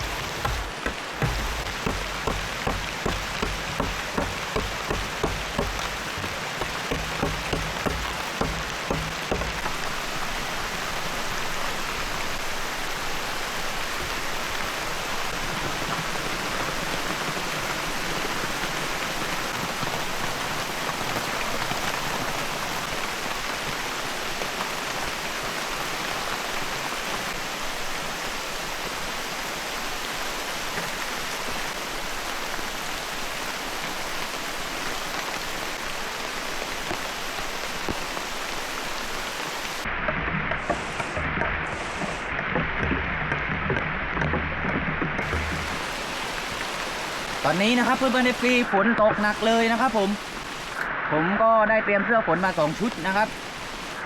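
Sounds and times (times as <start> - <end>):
regular knocks: 0.0 - 10.1, 39.8 - 48.1
heavy rain: 0.0 - 54.0.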